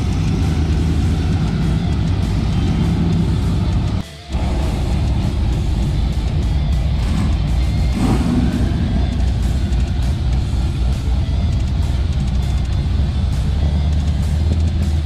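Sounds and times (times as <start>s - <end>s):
background music: 0.0s - 15.0s
car engine rumbling: 0.0s - 15.0s.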